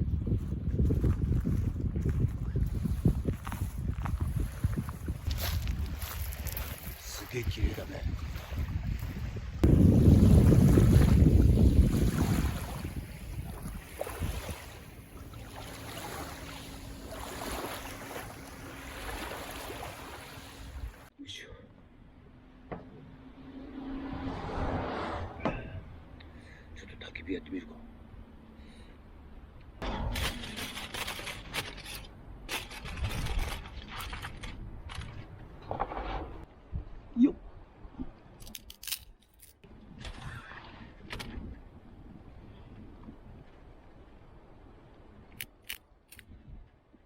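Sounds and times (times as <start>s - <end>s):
wind blowing across microphone: 0.0s - 15.5s, 32.4s - 38.6s, 39.6s - 47.0s
camp gear rustling and scraping: 2.1s - 7.4s, 29.8s - 36.5s.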